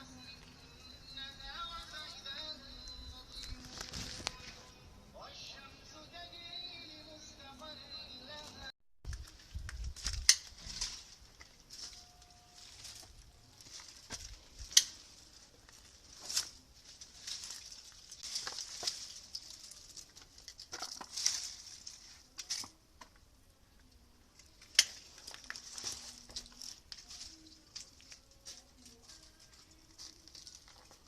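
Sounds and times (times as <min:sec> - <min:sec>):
crackles: 0:00.3 - 0:04.8, 0:08.4 - 0:23.2, 0:23.8 - 0:31.0
rustling leaves and twigs: 0:03.2 - 0:04.7, 0:09.1 - 0:31.0.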